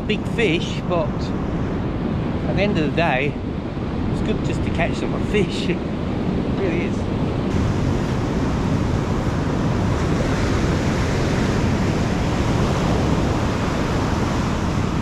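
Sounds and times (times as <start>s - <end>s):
ocean surf breaking: 0.0s - 15.0s
wind buffeting microphone: 0.0s - 15.0s.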